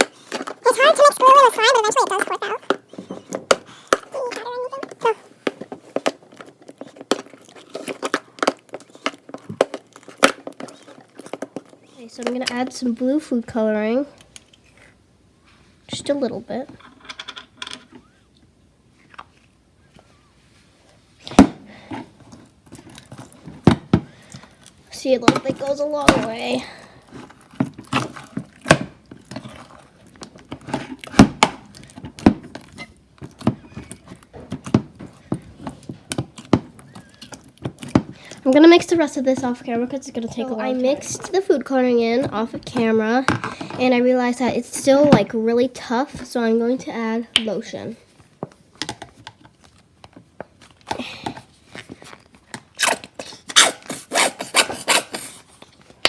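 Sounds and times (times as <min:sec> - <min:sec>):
slime rubbing and scraping in a bowl: 0:00.0 - 0:14.0, 0:24.9 - 0:31.2, 0:31.8 - 0:48.1, 0:51.0 - 0:55.8.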